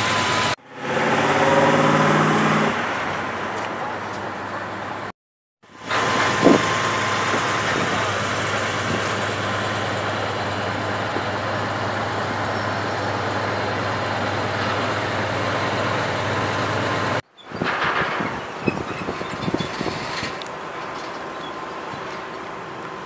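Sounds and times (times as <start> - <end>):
outdoor noise: 0.0 - 23.0
vehicle engine idling: 5.7 - 17.2.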